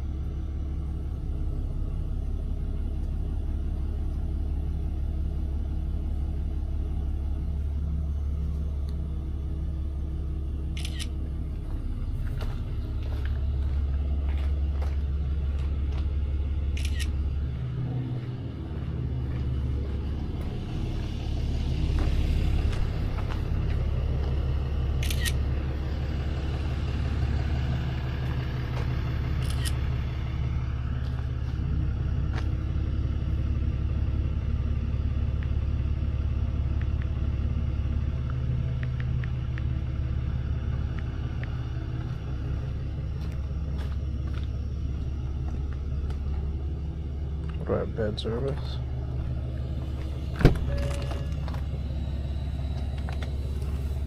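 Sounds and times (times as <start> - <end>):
truck engine and road rumble: 0.0 - 54.0.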